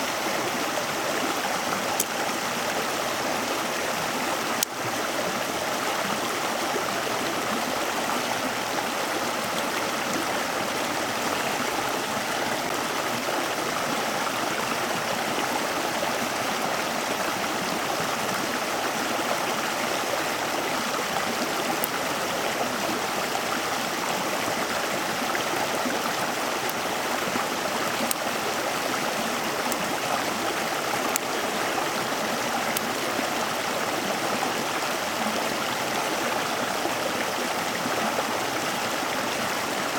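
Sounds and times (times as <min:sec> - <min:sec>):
flowing water: 0:00.0 - 0:39.9
faint sharp ticks: 0:27.9 - 0:28.5.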